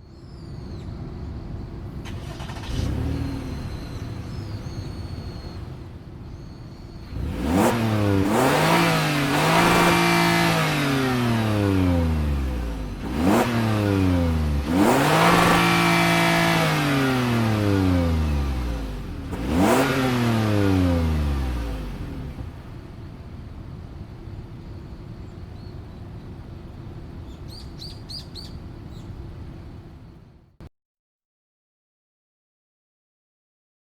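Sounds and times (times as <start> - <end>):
faint bird chirps: 0.0 - 1.9, 2.9 - 7.5, 23.7 - 30.2
car engine revving: 1.6 - 30.2.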